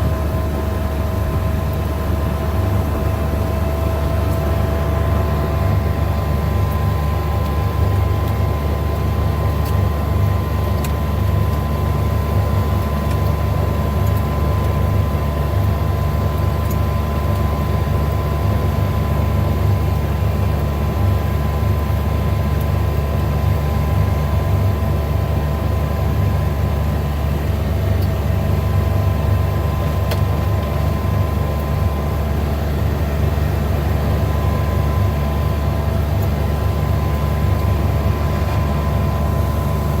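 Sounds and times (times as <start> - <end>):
faint steady whine: 26.5 - 40.0
vehicle engine and road noise: 26.7 - 40.0.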